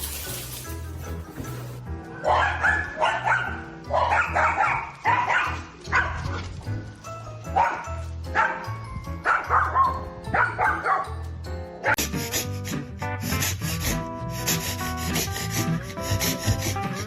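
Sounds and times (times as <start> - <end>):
background music with bass line: 0.0 - 17.0
dog barking: 2.2 - 6.3, 7.6 - 11.2.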